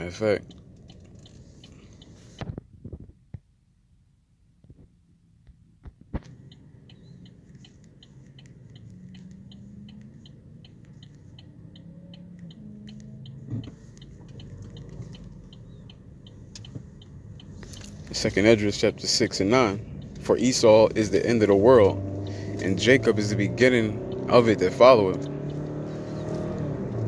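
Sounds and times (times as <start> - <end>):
steady ticking: 6.4 - 25.7.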